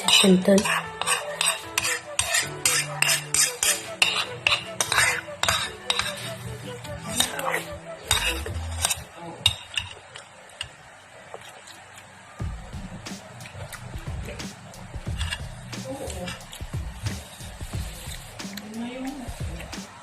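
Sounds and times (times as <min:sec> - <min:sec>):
spoon clinking against a dish: 0:00.0 - 0:06.4, 0:07.1 - 0:10.0
person eating noodles: 0:00.0 - 0:10.6, 0:13.4 - 0:18.7.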